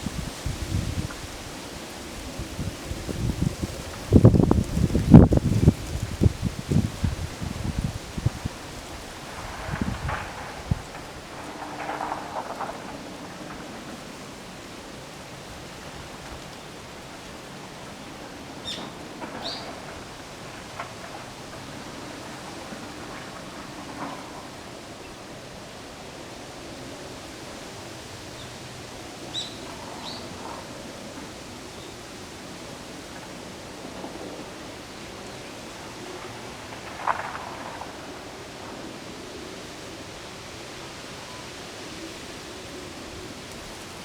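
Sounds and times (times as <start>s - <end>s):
rustling leaves: 0.0s - 44.0s
wind: 0.0s - 44.0s.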